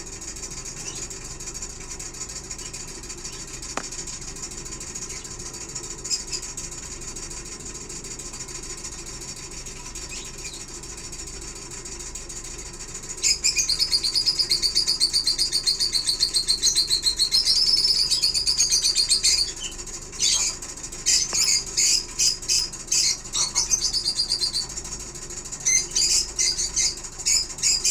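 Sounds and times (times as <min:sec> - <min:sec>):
low background hum: 0:00.0 - 0:27.9
lovebirds chattering: 0:00.4 - 0:01.5, 0:02.2 - 0:06.5, 0:13.2 - 0:27.9.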